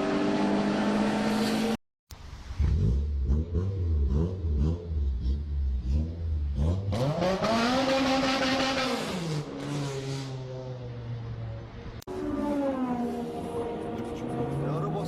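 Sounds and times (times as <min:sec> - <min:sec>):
car engine revving: 0:02.6 - 0:10.5.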